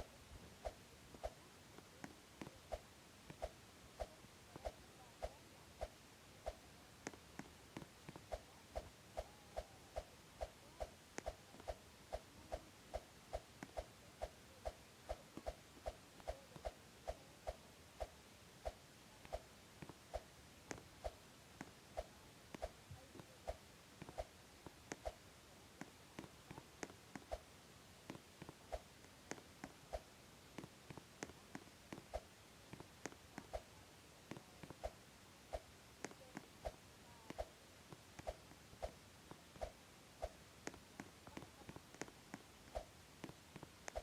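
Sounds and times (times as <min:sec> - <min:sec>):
faint clicks and light taps: 0:00.0 - 0:27.4, 0:28.0 - 0:44.0
faint even ticking: 0:00.0 - 0:27.5.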